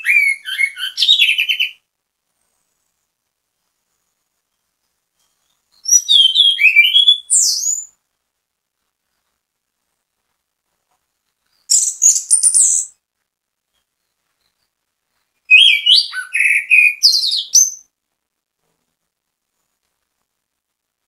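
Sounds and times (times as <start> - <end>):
thrush singing whistled notes: 0.0 - 1.8, 5.2 - 7.9, 11.6 - 13.0, 15.4 - 17.9.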